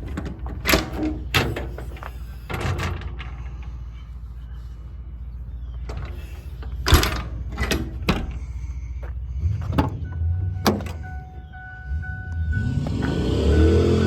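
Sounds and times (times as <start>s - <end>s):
metal clanks and thuds: 0.0s - 3.8s, 5.8s - 11.2s.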